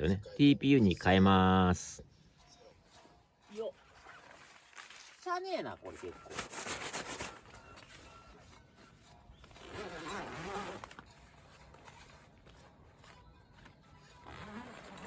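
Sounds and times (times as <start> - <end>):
tent fabric rustling: 2.9 - 15.0
zipper: 9.4 - 15.0.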